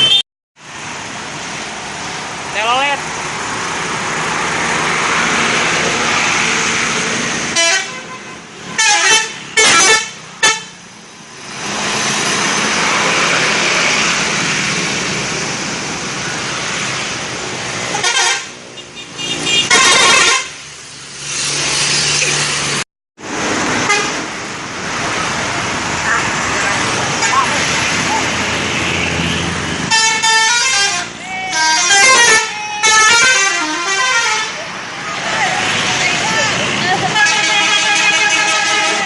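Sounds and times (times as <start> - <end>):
vehicle horns honking: 0.0 - 0.2, 7.5 - 10.8, 17.9 - 20.6, 23.8 - 24.2, 28.9 - 34.7, 36.2 - 39.0
road traffic noise: 0.0 - 39.0.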